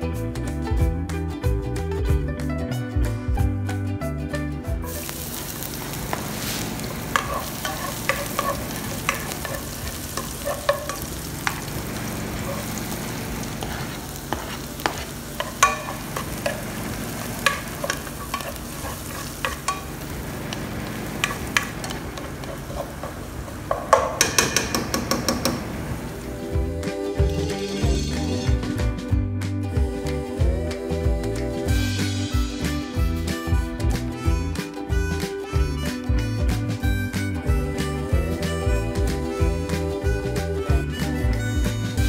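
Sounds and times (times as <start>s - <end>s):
garlic sizzling in hot oil: 4.9s - 26.6s
wooden spoon scraping and tapping pan: 6.0s - 25.9s.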